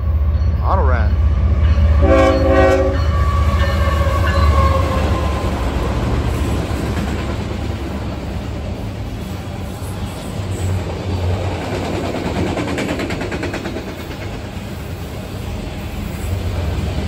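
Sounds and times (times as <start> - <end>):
freight train rumble and wheel clatter: 0.0 - 17.0
train horn blast: 1.9 - 5.6.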